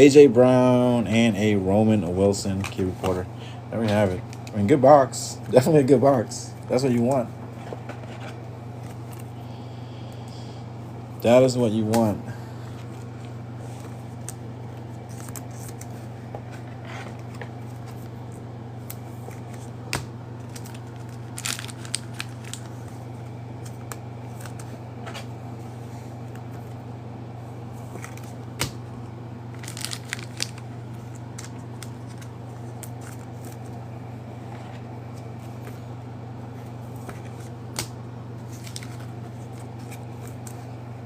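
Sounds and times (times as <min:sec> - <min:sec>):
steady low hum: 0:00.0 - 0:41.0
card packaging crinkling: 0:13.7 - 0:23.0, 0:29.5 - 0:33.8, 0:37.0 - 0:40.6.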